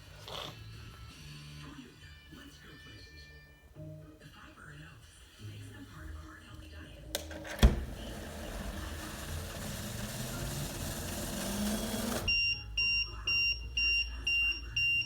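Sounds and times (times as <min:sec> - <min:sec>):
high-pitched warning beeps: 0:12.3 - 0:15.0.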